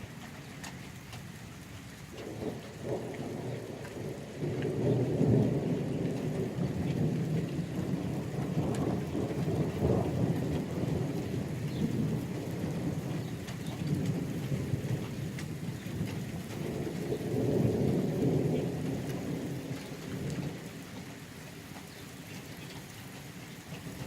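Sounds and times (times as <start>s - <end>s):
steady rain: 0.0s - 24.0s
rolling thunder: 2.2s - 21.0s.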